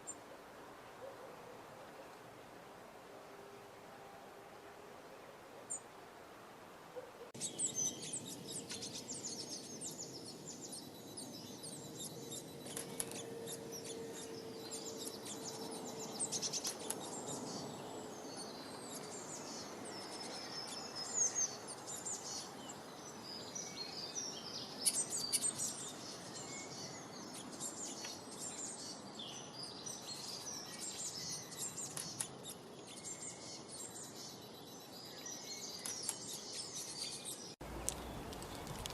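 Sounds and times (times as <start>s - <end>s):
birds chirping and calling: 7.0s - 38.9s.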